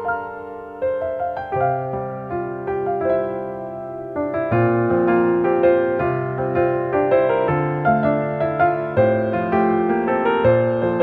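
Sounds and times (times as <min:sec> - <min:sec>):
gentle piano melody: 0:00.0 - 0:11.0.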